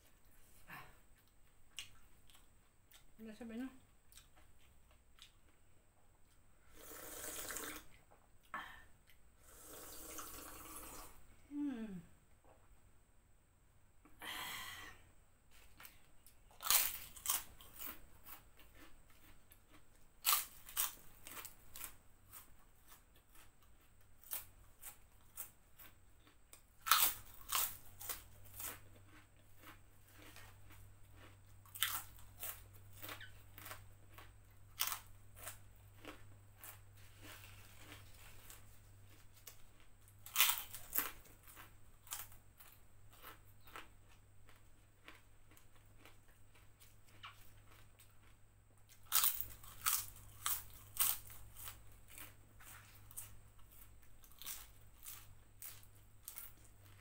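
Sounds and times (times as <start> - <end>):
soft chewing crunches: 0.0 - 3.2, 3.8 - 6.5, 15.5 - 57.0
crackers crunching as bitten: 15.8 - 57.0.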